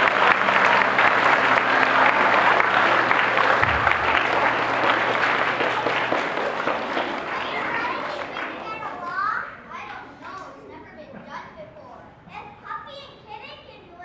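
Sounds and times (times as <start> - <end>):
audience clapping: 0.0 - 10.6.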